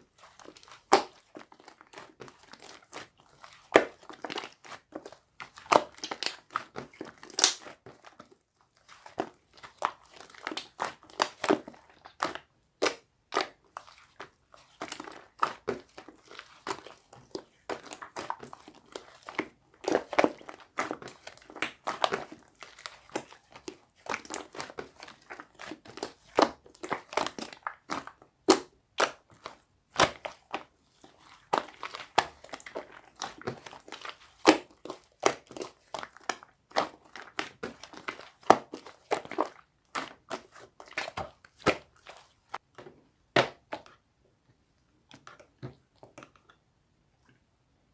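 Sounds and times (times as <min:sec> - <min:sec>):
slime clicking and popping: 0:07.2 - 0:07.7.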